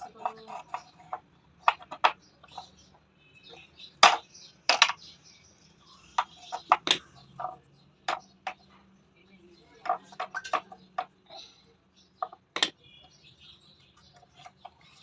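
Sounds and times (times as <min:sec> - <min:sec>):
sharp knocks and clicks: 0:00.0 - 0:02.8, 0:04.0 - 0:05.0, 0:06.2 - 0:08.8, 0:09.8 - 0:11.2, 0:12.2 - 0:12.8.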